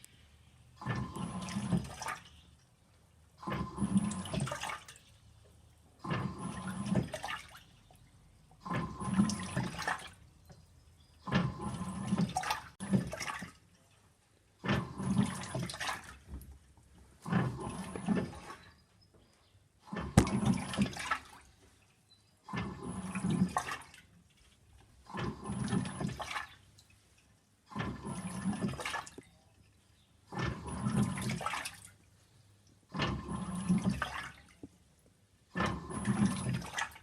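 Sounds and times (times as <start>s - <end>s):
washing machine water sloshing: 0.0s - 37.0s
washing machine motor whine: 0.8s - 2.2s, 3.4s - 4.8s, 6.0s - 7.5s, 8.6s - 10.3s, 11.2s - 13.4s, 14.6s - 16.4s, 17.2s - 18.6s, 19.9s - 21.3s, 22.5s - 24.0s, 25.1s - 26.5s, 27.7s - 29.1s, 30.2s - 31.6s, 32.9s - 34.4s, 35.5s - 37.0s.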